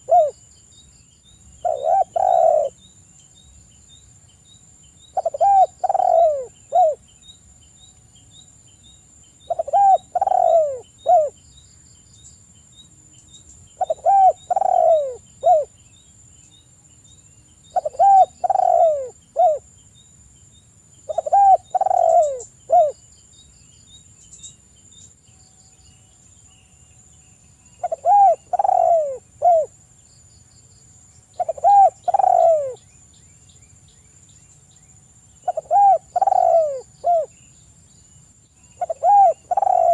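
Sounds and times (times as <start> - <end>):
dove cooing: 0.0 - 0.4, 1.6 - 2.8, 5.2 - 7.0, 9.5 - 11.4, 13.8 - 15.7, 17.7 - 19.6, 21.1 - 23.0, 27.8 - 29.7, 31.4 - 32.8, 35.4 - 37.3, 38.8 - 39.9.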